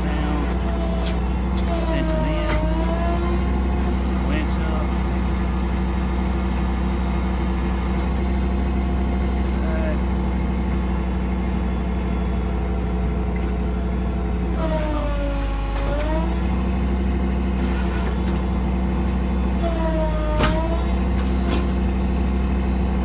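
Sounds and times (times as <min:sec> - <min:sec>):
high engine whine: 0:00.0 - 0:16.8
truck engine running: 0:00.0 - 0:23.0.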